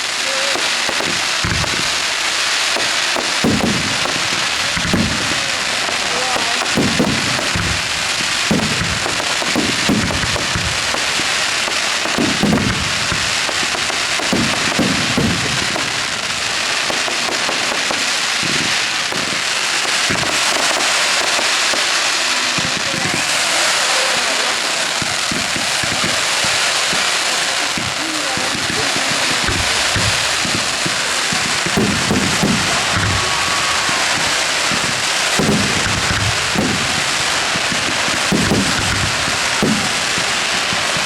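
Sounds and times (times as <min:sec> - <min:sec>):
firework shells booming: 0:00.0 - 0:41.0
fireworks crackling: 0:00.0 - 0:41.0.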